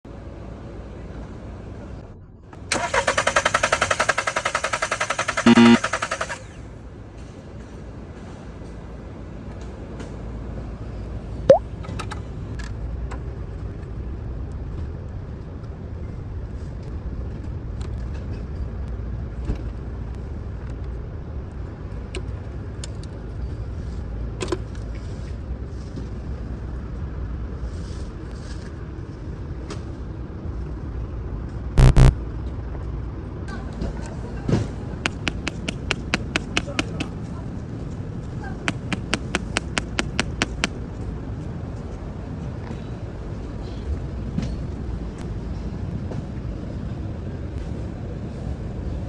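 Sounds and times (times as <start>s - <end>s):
loud two-pulse beep: 5.5s - 5.9s, 31.8s - 32.1s
faint clicks: 31.8s - 32.1s, 35.1s - 37.1s, 38.7s - 40.7s.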